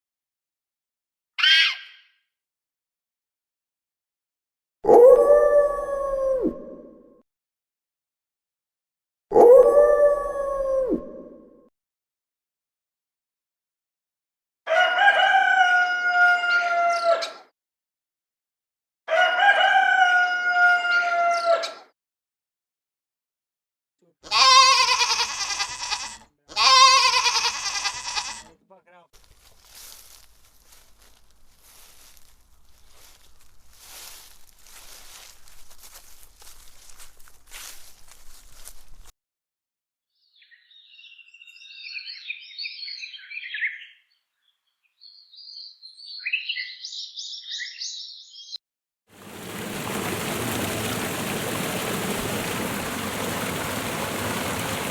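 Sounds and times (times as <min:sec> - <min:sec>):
rooster crowing: 0:14.7 - 0:17.3, 0:19.1 - 0:21.8
goat bleating: 0:24.2 - 0:28.6.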